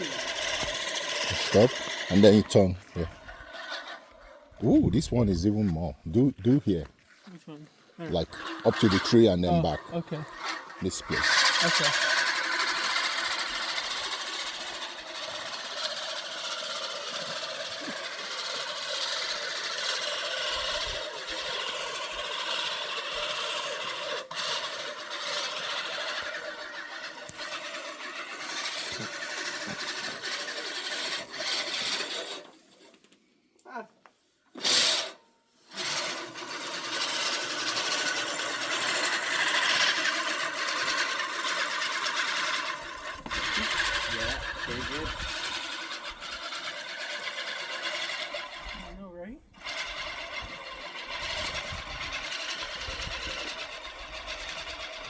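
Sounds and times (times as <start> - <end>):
lawn mower cutting grass: 0.0 - 33.0, 34.6 - 55.0.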